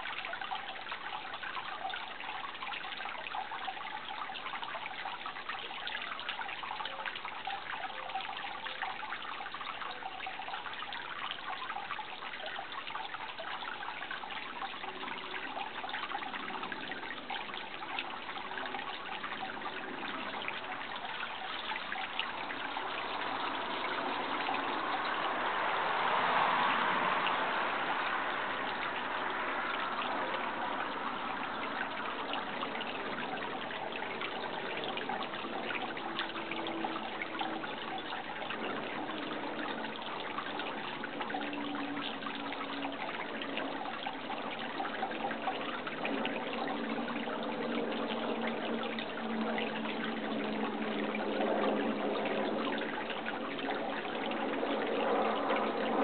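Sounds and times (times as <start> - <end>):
running water rushing: 0.0 - 56.0.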